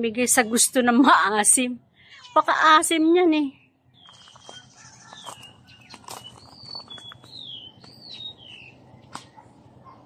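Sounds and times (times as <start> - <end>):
high whistled bird song: 3.6 - 9.1.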